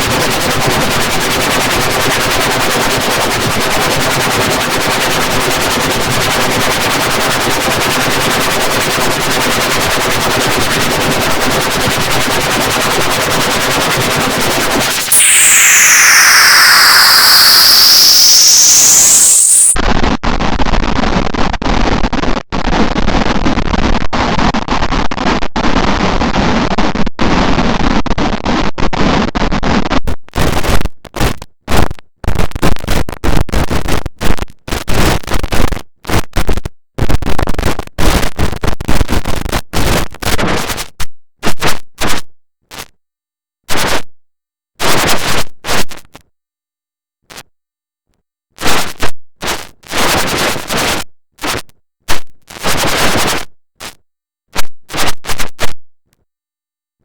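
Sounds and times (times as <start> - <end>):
distorted digital noise: 14.7 - 19.8.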